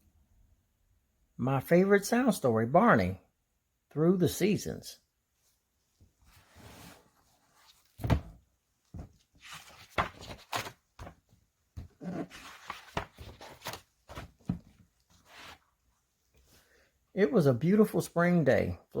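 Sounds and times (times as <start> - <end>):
irregular knocks and thunks: 8.0 - 9.2.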